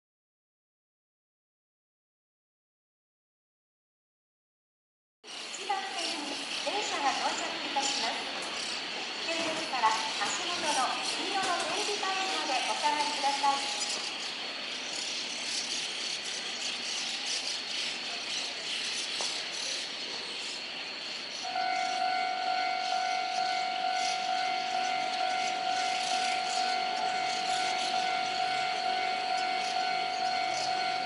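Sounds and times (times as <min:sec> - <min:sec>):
high electronic tone: 0:21.5 - 0:31.0.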